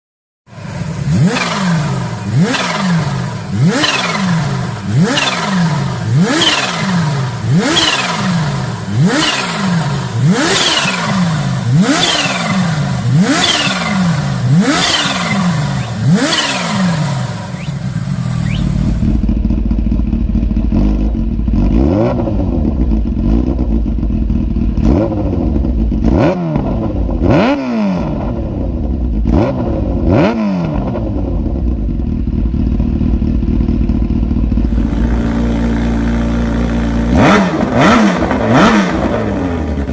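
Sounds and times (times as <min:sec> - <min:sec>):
motorcycle engine revving: 0:00.5 - 0:39.9.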